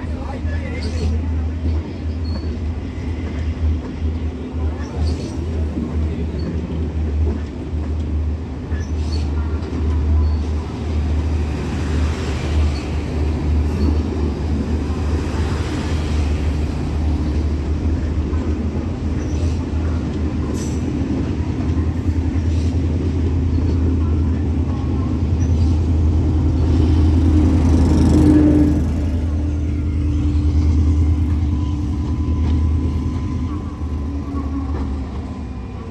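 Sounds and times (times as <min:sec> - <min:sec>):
diesel train engine drone: 0:00.0 - 0:35.9
train clanks: 0:00.0 - 0:35.9
wheels rumbling on rails: 0:00.0 - 0:35.9.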